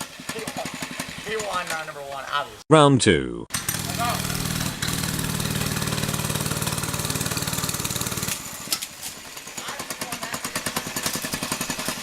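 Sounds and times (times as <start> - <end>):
mini bike engine running: 0.0 - 2.2, 3.5 - 12.0
rapid clatter: 3.6 - 12.0.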